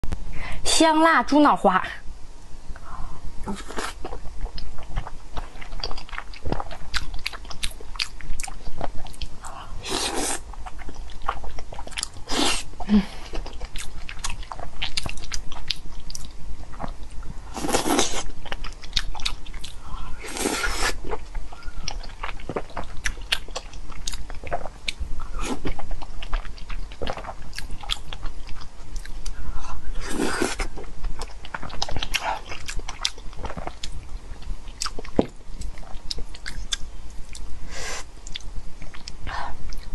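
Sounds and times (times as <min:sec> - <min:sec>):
wet chewing and smacking: 0:03.8 - 0:09.6, 0:10.5 - 0:12.2, 0:13.4 - 0:19.8, 0:20.9 - 0:25.0, 0:25.6 - 0:29.4, 0:30.5 - 0:37.5, 0:38.2 - 0:39.9.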